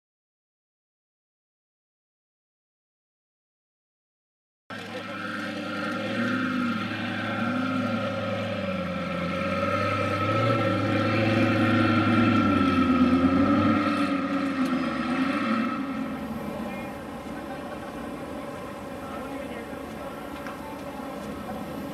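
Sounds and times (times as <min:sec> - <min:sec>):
sports car engine revving: 0:04.7 - 0:21.9.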